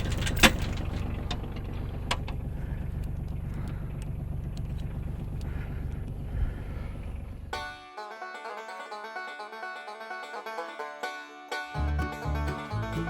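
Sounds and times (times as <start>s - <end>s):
light clicks and rattles: 0.0s - 6.3s
tractor engine running: 0.0s - 7.9s, 11.7s - 13.0s
banjo music: 7.5s - 13.0s.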